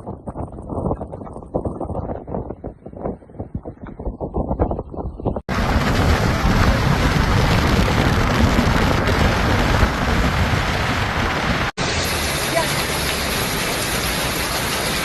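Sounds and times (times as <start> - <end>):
wind buffeting microphone: 0.0 - 11.8
heavy rain: 5.5 - 15.0.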